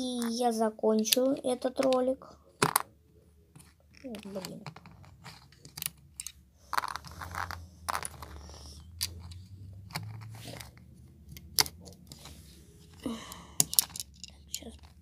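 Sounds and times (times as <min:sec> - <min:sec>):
plastic bricks clicking and rattling: 0:01.0 - 0:02.9, 0:03.6 - 0:08.4, 0:13.6 - 0:15.0.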